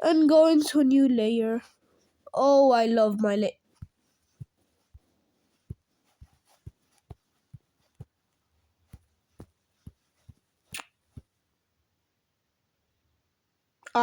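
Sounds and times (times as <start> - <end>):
stylus tapping on tablet screen: 3.7 - 8.2, 8.8 - 10.5.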